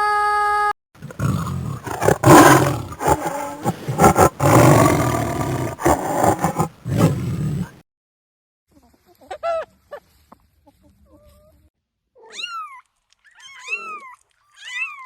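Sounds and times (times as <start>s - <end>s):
big cat roaring: 1.0s - 7.8s.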